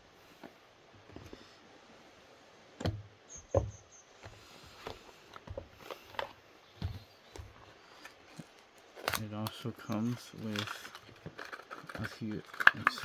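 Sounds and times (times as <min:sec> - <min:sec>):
packaging handled and opened: 0:07.8 - 0:13.0.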